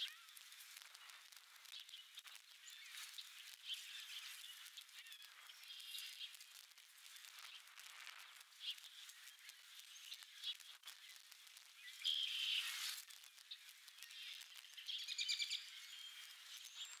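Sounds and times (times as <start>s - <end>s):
short bird chirps and calls: 14.0s - 17.0s.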